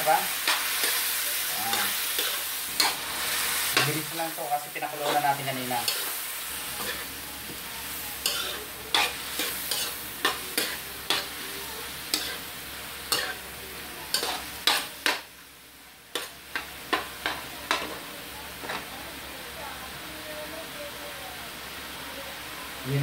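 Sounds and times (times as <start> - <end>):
food sizzling in oil: 0.0 - 23.0
metal spoon scraping a pan: 0.4 - 4.1, 4.9 - 7.2, 8.2 - 11.4, 12.0 - 12.5, 13.1 - 13.4, 14.1 - 15.2.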